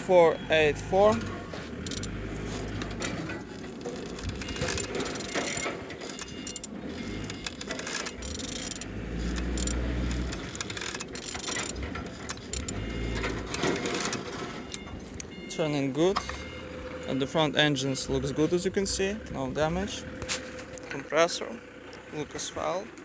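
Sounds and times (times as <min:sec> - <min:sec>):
engine mechanical knocks: 0:00.0 - 0:23.0
ratchet wrench clicking: 0:01.8 - 0:02.2, 0:04.0 - 0:12.8.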